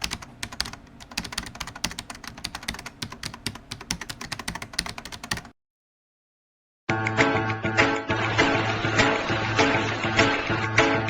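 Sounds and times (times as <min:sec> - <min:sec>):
fast typing on keyboard: 0:00.0 - 0:05.5.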